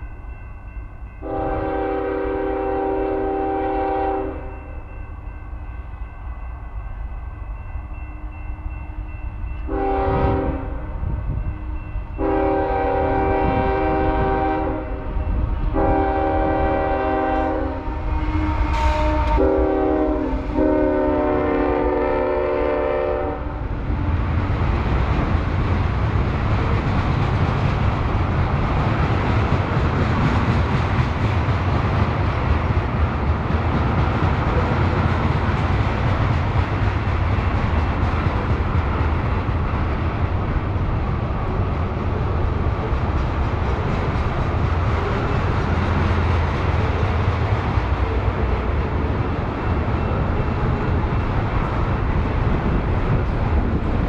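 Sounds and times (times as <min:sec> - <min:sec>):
train rolling past on rails: 0:00.0 - 0:54.0
locomotive horn: 0:01.2 - 0:04.6, 0:09.7 - 0:11.0, 0:12.2 - 0:23.7.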